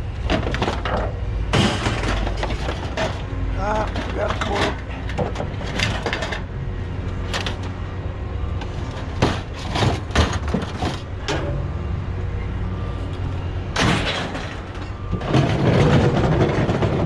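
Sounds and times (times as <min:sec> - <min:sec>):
low engine rumble: 0:00.0 - 0:17.0
scrap knocking and rattling: 0:00.2 - 0:06.5, 0:08.9 - 0:11.5, 0:13.8 - 0:17.0.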